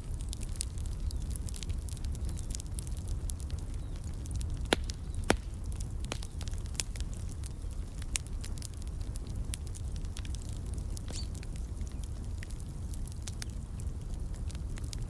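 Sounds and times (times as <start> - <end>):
fireplace fire crackling: 0.0 - 15.0
loud fire pops: 0.0 - 15.0
low fire rumble: 0.0 - 15.0.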